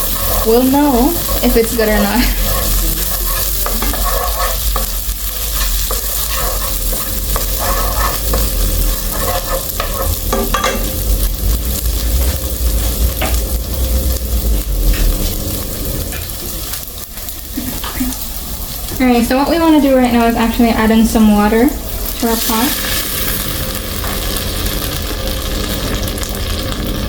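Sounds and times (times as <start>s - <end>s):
spoon stirring and knocking pot: 0.0s - 11.0s
vegetables sizzling in butter: 0.0s - 27.0s
low rumble: 10.0s - 16.2s, 18.2s - 25.1s.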